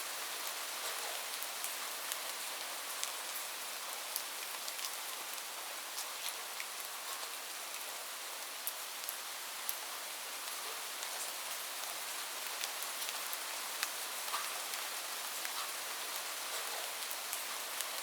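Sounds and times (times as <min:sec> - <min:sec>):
steady rain hiss: 0:00.0 - 0:18.0
raindrops ticking on a surface: 0:00.1 - 0:18.0.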